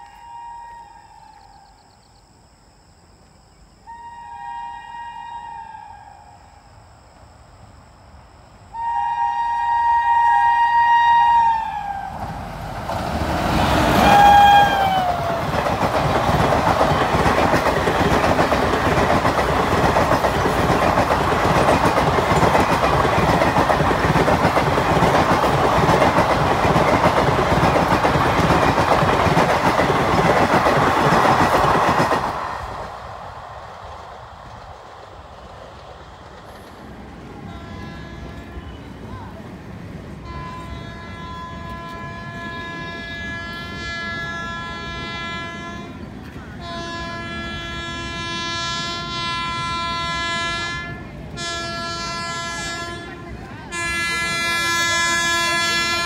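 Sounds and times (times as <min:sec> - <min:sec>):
locomotive horn blasts: 0:03.9 - 0:05.9, 0:08.7 - 0:12.2, 0:13.9 - 0:15.1, 0:37.4 - 0:39.0, 0:40.2 - 0:56.0
rush of train coaches passing: 0:03.9 - 0:56.0.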